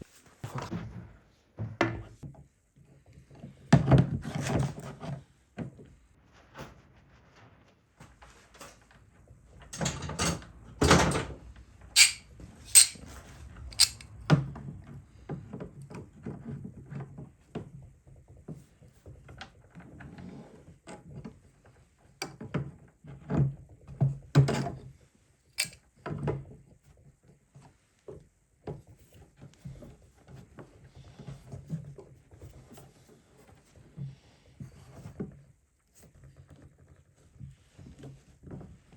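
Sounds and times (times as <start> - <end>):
knocks and clatter of hand work: 12.0 - 13.0.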